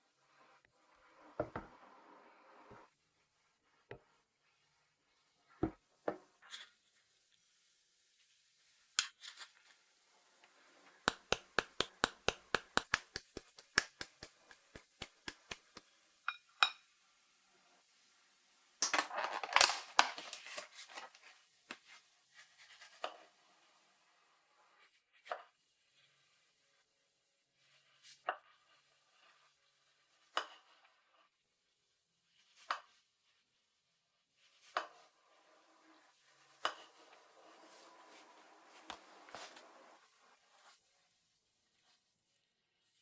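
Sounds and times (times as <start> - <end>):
sharp taps or clicks: 11.1 - 15.9.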